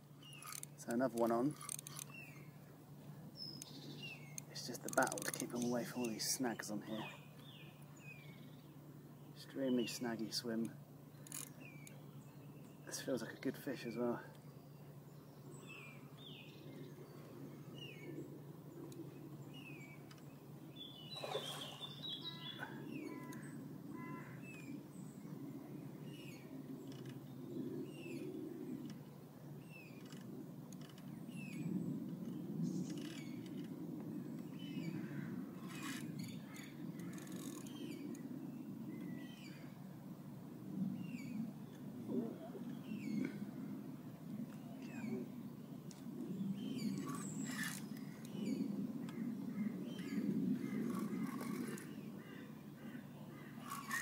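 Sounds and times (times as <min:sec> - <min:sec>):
small birds chirping: 0:00.0 - 0:39.8, 0:40.7 - 0:54.0.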